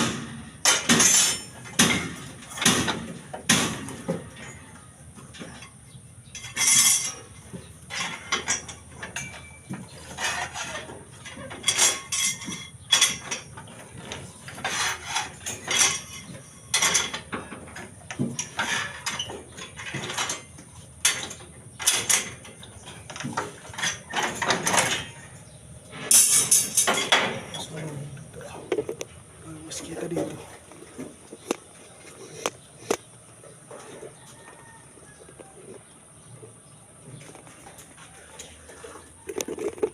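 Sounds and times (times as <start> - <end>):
metallic clinks of steel rebar: 0.6 - 4.6, 5.4 - 25.3, 25.9 - 27.9.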